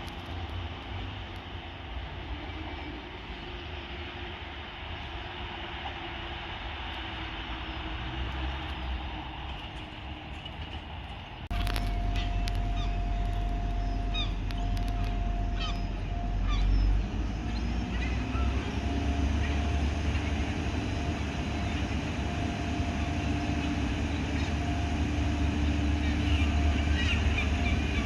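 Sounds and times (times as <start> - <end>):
diesel train engine rumble: 0.0 - 28.0
steady engine whine: 0.0 - 28.0
birds chirping: 7.6 - 28.0.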